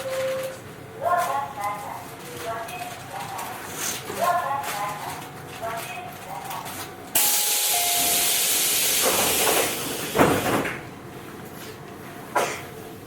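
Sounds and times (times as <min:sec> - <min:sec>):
train compressed air hissing: 0:07.2 - 0:10.2.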